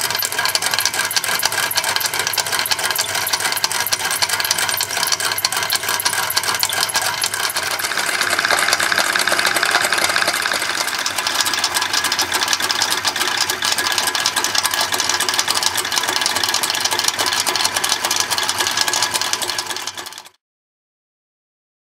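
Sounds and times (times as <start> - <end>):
toy motor mechanical clatter: 0.0 - 20.4.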